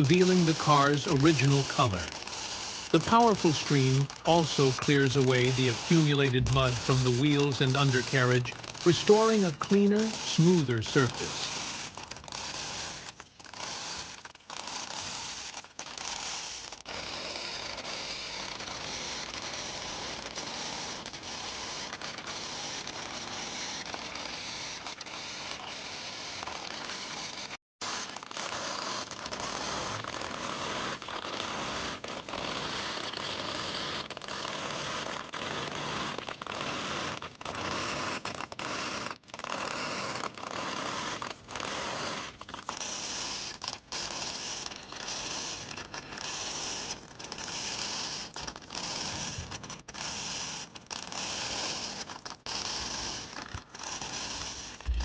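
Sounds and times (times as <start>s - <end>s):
water sprayer hissing: 0.0s - 11.8s.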